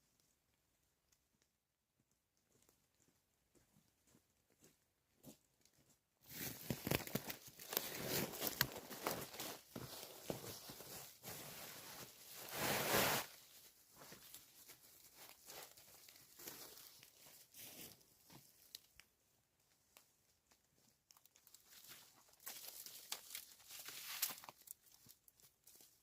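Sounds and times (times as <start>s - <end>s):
rustling and crunching handling: 6.2s - 26.0s
small clicks and crackles: 6.5s - 9.9s, 18.2s - 26.0s.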